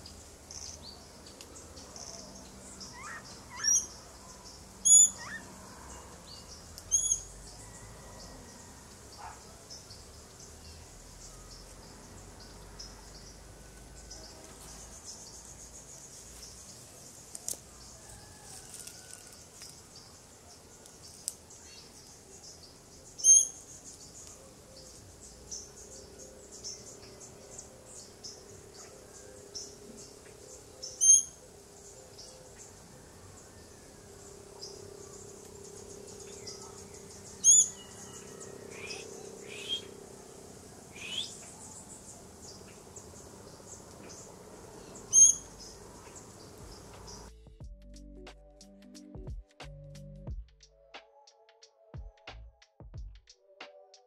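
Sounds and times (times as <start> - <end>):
high bird chirps: 4.8 - 5.4, 6.8 - 7.3, 37.4 - 38.1, 41.0 - 41.4, 45.0 - 45.8
insects trilling: 21.0 - 47.3.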